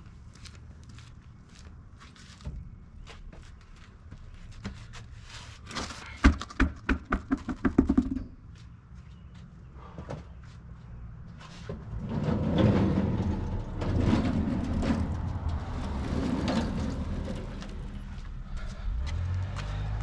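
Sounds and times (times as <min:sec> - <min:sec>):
vehicle engine running: 0:17.0 - 0:20.0.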